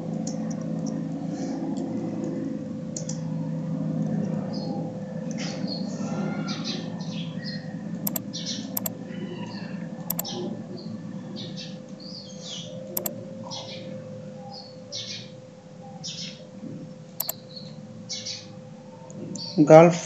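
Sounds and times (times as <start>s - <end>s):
small birds chirping: 6.5s - 10.4s.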